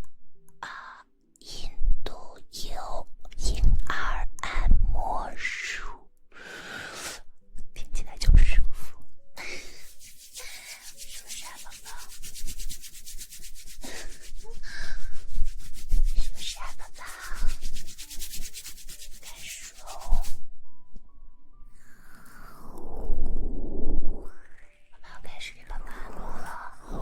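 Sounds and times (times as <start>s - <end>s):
hands rubbing against microphone: 9.4s - 20.4s.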